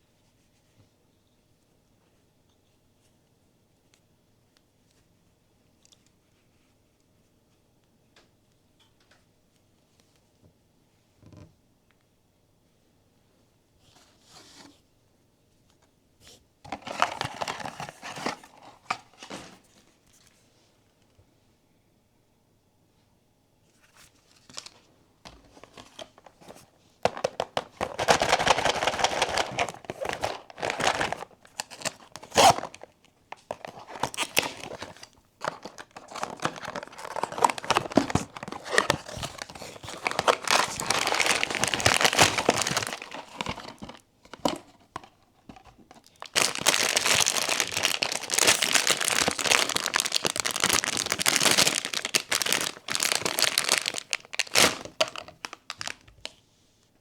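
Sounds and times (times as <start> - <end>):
packaging crinkling and tearing: 16.7 - 19.7, 24.4 - 56.4.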